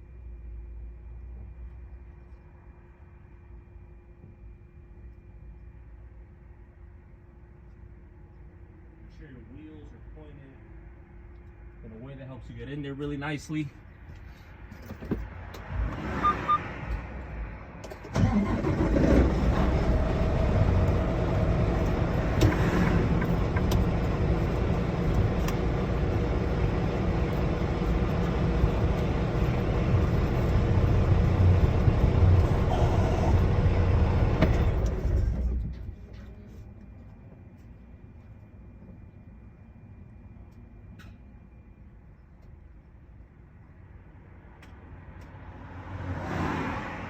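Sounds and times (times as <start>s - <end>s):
diesel engine starting: 17.8s - 36.1s
engine shutting off: 17.9s - 36.0s
diesel engine idling: 18.2s - 36.0s.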